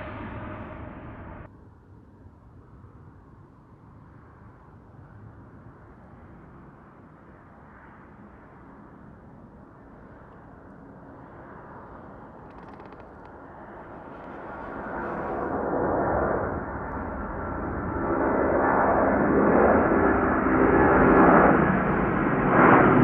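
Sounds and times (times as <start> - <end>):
jet airliner taking off: 0.0 - 1.5, 13.4 - 23.0.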